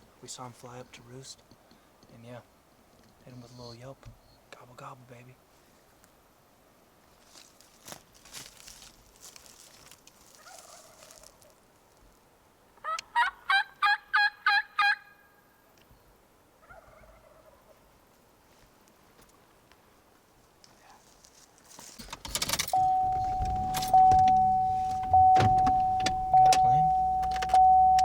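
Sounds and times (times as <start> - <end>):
turkey gobbling: 10.4 - 11.3, 12.8 - 15.3, 16.6 - 17.8.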